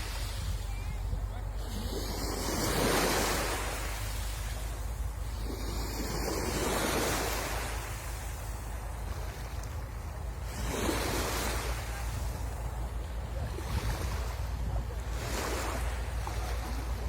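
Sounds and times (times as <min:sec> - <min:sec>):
sea waves breaking on shore: 0:00.0 - 0:17.0
wind rumbling on microphone: 0:00.0 - 0:17.0.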